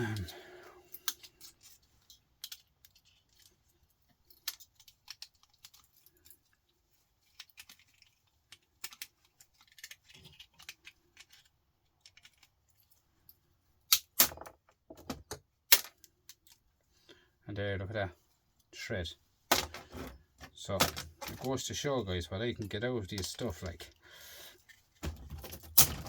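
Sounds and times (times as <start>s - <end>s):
clicks of parts pried off: 7.2s - 12.6s.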